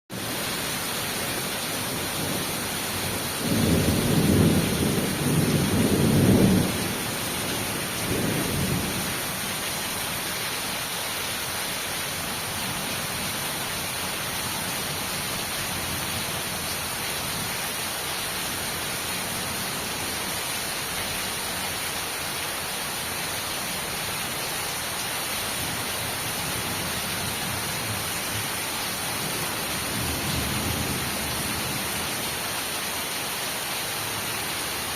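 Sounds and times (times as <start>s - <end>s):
steady rain falling: 0.1s - 34.9s
thunder rumbling: 2.0s - 9.2s.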